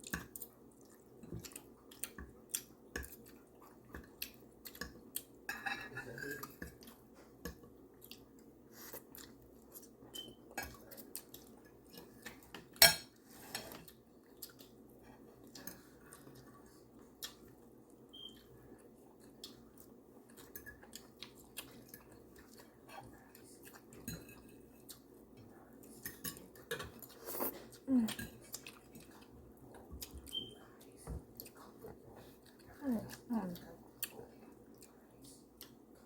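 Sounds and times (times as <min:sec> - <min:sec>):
chewing: 0:00.0 - 0:05.4, 0:06.2 - 0:12.8, 0:13.7 - 0:36.0
cutlery clatter: 0:05.5 - 0:06.7, 0:12.8 - 0:13.8
cutlery clinking on plates: 0:05.5 - 0:06.8, 0:12.3 - 0:13.8.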